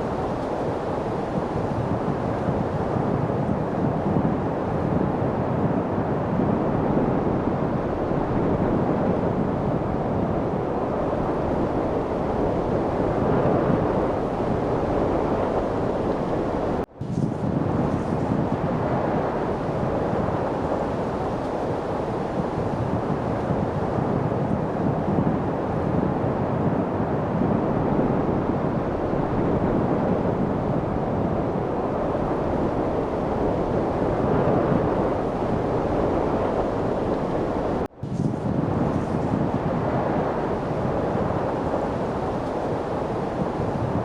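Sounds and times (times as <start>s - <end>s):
light wind: 0.0s - 44.0s.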